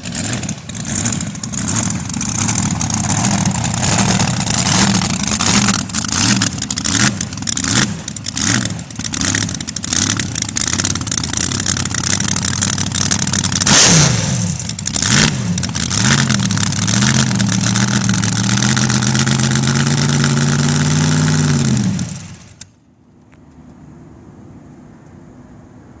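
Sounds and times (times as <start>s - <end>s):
loud engine revving: 0.0s - 22.6s.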